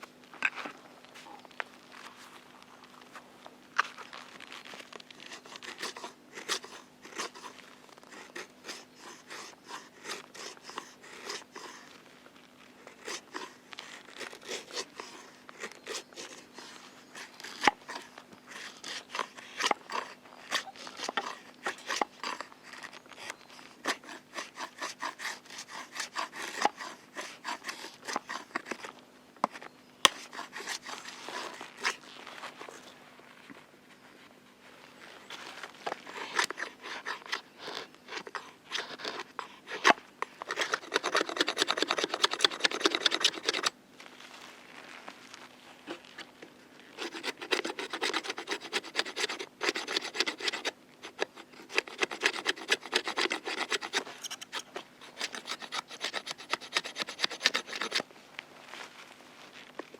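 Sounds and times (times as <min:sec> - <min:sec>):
rapid scraping strokes: 0:23.8 - 0:28.8, 0:30.1 - 0:32.0, 0:36.0 - 0:43.7, 0:47.0 - 0:58.0.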